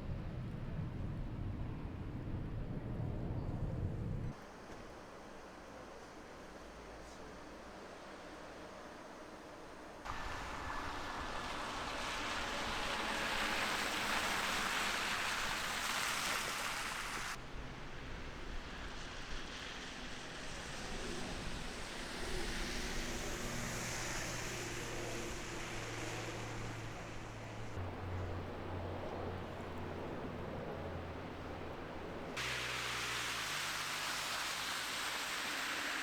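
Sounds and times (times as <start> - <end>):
broad rushing hiss: 10.1 - 17.5, 18.7 - 27.8, 32.4 - 36.0
traffic engine hum: 10.1 - 36.0.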